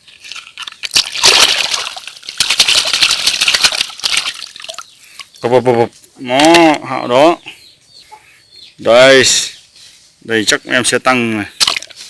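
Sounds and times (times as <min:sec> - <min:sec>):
water sloshing and splashing: 0:00.0 - 0:05.3, 0:11.6 - 0:12.0.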